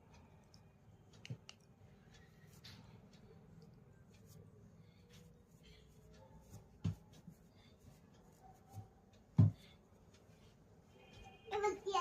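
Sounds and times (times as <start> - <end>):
soft thumps: 8.8 - 9.7.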